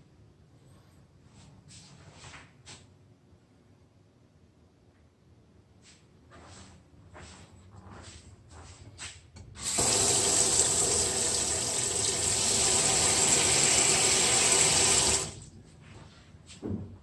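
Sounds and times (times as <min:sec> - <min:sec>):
tap water running into sink: 0:09.6 - 0:15.4.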